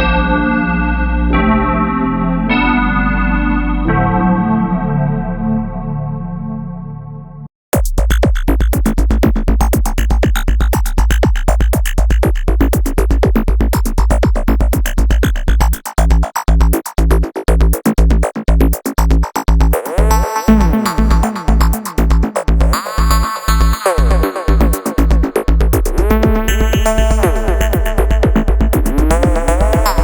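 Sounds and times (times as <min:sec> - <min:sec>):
pulsing deep bass: 0:00.0 - 0:30.0
fast repeated synth notes: 0:19.3 - 0:30.0.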